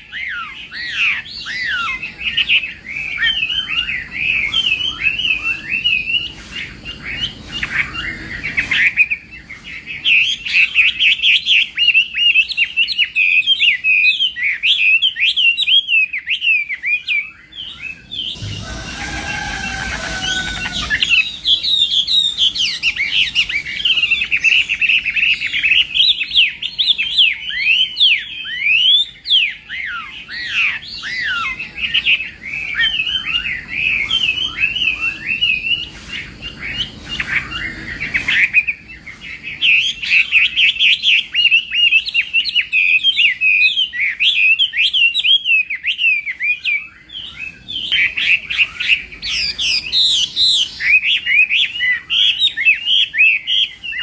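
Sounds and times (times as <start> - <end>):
bird singing whistled song: 0.0 - 54.0.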